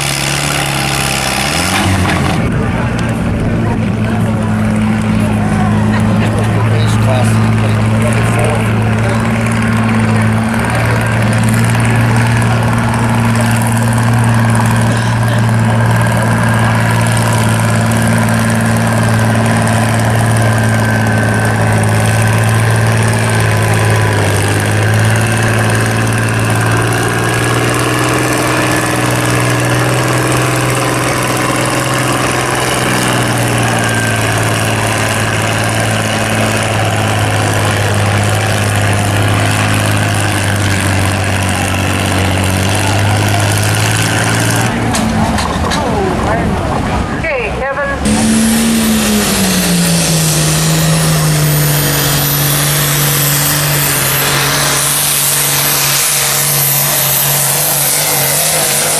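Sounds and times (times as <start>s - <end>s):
tractor engine running: 0.0s - 58.9s.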